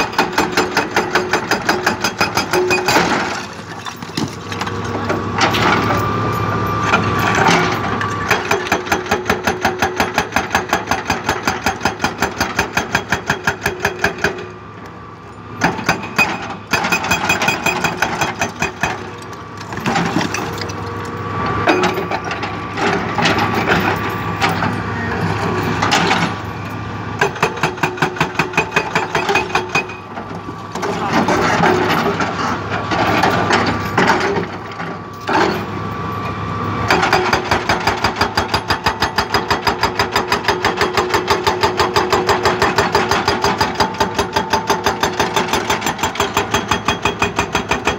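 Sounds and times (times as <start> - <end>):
hydraulic breaker hammering rock: 0.0 - 6.0, 6.9 - 14.5, 15.6 - 20.8, 27.2 - 30.0, 36.9 - 47.9
diesel engine hum: 17.9 - 29.0, 29.6 - 39.1.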